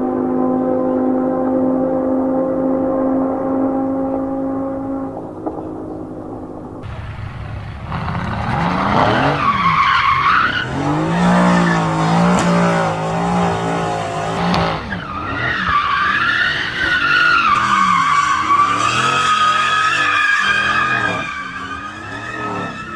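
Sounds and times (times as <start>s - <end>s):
car engine at high revs: 6.8s - 22.9s
tyres squealing: 7.9s - 22.9s.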